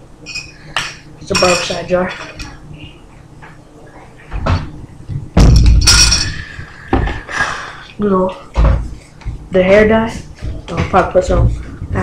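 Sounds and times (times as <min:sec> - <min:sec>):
items knocking and clattering: 0:04.3 - 0:07.3
heavy thump: 0:04.4 - 0:06.1.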